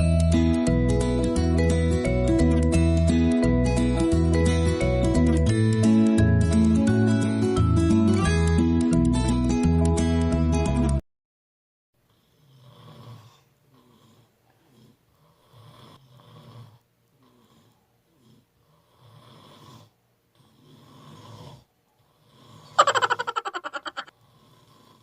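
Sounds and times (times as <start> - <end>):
faint snoring: 12.0 - 22.8, 24.0 - 25.0
quiet breaths: 12.0 - 22.8, 24.1 - 25.0.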